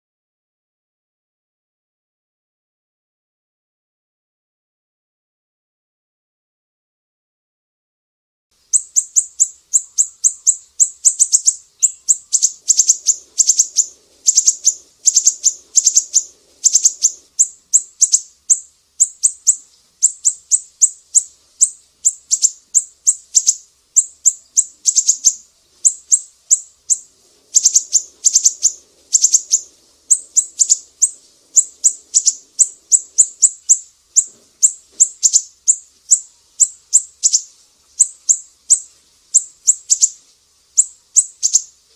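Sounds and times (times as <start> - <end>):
songbird chirping: 8.6 - 41.9.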